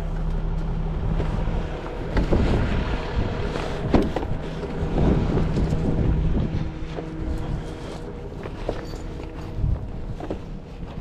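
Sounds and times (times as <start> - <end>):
truck engine idling: 0.0 - 11.0
wind on microphone: 0.0 - 11.0
equipment knocking and clanking: 3.8 - 5.8.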